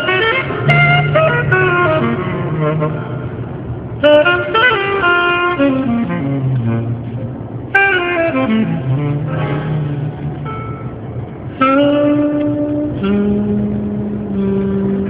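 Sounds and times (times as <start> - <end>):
melody over bass line: 0.0 - 4.5, 8.4 - 12.2.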